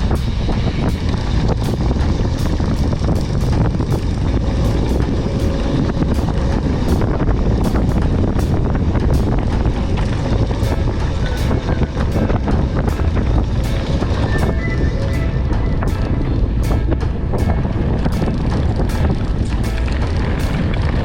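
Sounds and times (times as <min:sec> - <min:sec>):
bike rattling and knocking: 0:00.0 - 0:21.0
wind rumble on microphone: 0:00.0 - 0:21.0.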